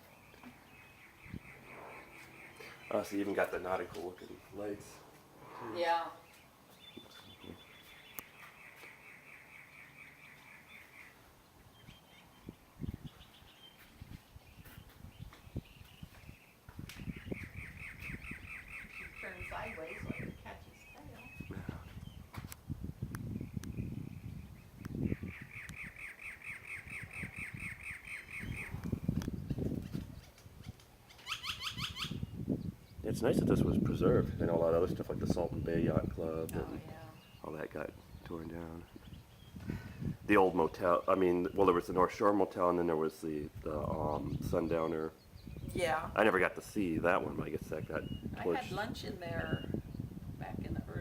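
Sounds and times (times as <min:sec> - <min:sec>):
bird trilling: 0:00.4 - 0:11.2, 0:17.1 - 0:21.5, 0:25.0 - 0:28.8, 0:31.1 - 0:32.3
low rumbling noise: 0:01.0 - 0:06.4.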